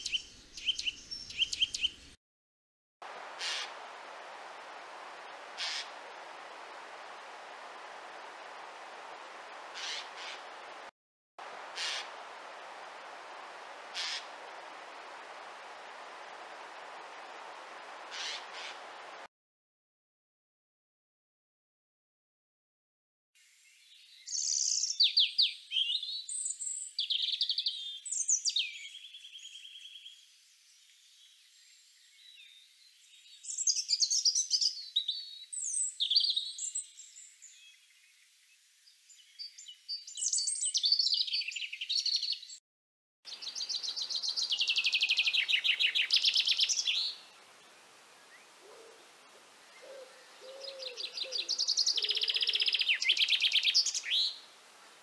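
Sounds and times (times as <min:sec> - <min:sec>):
songbird twittering: 0:00.0 - 0:02.1, 0:09.7 - 0:10.6, 0:18.1 - 0:18.9, 0:43.3 - 0:54.5.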